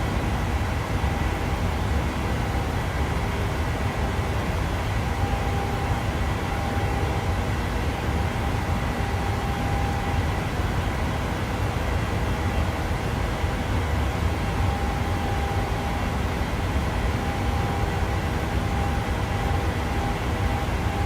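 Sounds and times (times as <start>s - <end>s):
airplane cabin engine rumble: 0.1s - 10.9s
faint steady tones: 14.3s - 21.0s.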